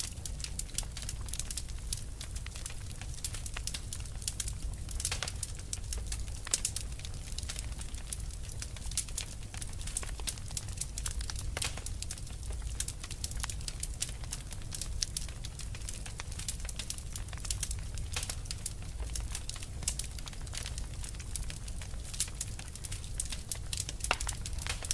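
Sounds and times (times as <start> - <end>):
fire crackling and popping: 0.0 - 24.9.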